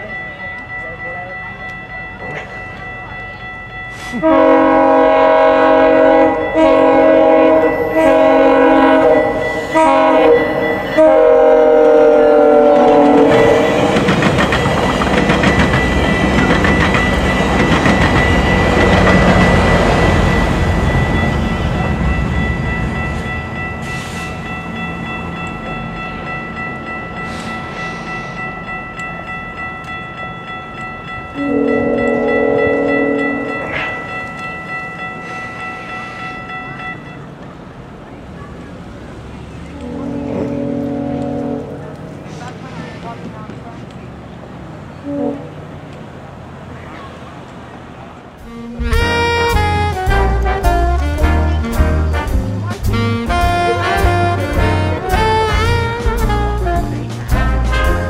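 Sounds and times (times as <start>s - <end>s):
train coaches rumbling and clattering: 0.0s - 58.0s
train air horn blasts: 4.0s - 14.1s, 31.4s - 33.7s, 39.7s - 42.0s, 45.0s - 45.6s, 48.4s - 58.0s.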